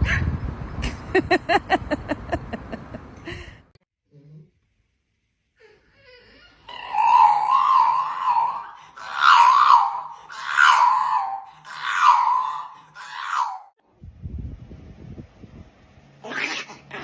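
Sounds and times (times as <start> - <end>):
dog howling: 6.2 - 13.8.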